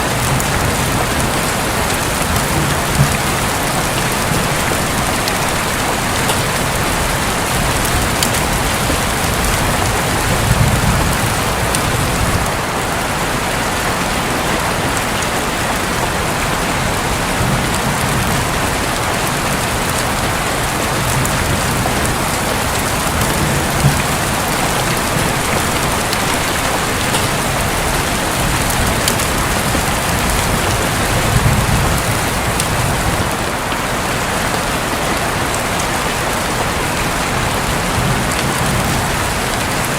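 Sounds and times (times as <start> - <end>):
distant thunder rumbles: 0.0 - 12.9, 16.8 - 33.6
heavy rain on a roof: 0.0 - 39.9.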